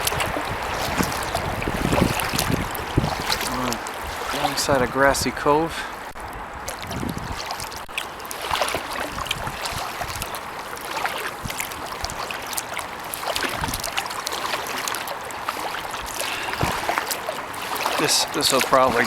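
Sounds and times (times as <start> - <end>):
paddle splashing in water: 0.0 - 19.0
low thuds: 16.4 - 17.0.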